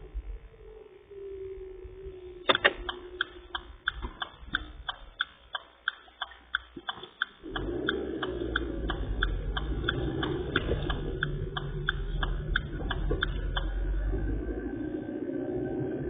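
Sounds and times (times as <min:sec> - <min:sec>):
regular ticking: 0:02.5 - 0:15.0
garbage truck engine rumbling: 0:07.5 - 0:16.0.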